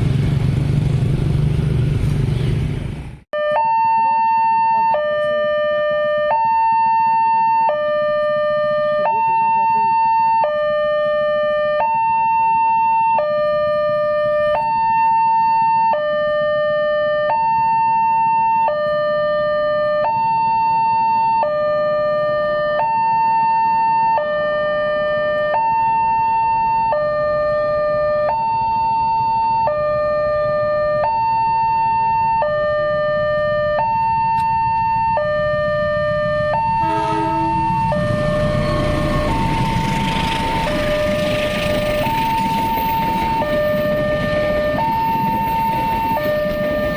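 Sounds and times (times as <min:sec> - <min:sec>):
two-tone crossing alarm: 0:03.4 - 0:46.9
train rumbling over crossing: 0:34.4 - 0:46.9
train horn: 0:36.3 - 0:42.6.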